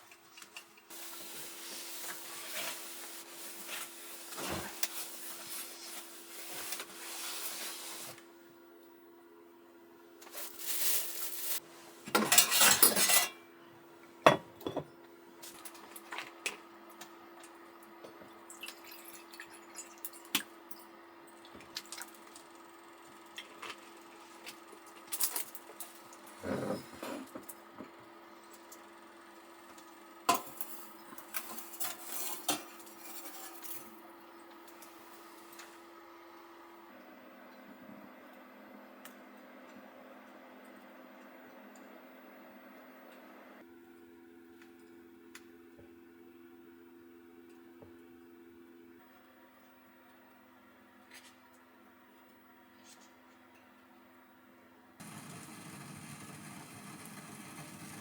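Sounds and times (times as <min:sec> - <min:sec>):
dishes and utensils clinking: 0:12.1 - 0:13.4.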